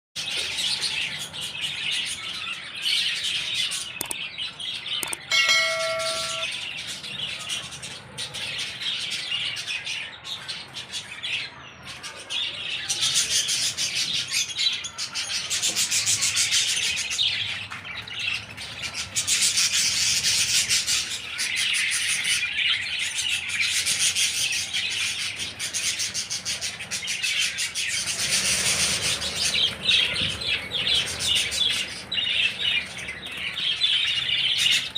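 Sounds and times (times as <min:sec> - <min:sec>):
small bell ringing tone: 0:05.0 - 0:06.7
budgerigars chattering and chirping: 0:12.6 - 0:34.9.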